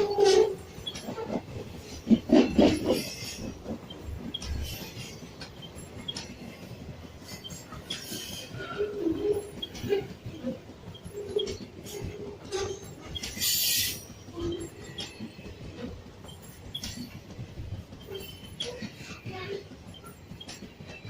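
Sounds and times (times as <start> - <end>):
train running on rails: 0.0 - 21.0
train wheels knocking: 0.0 - 21.0.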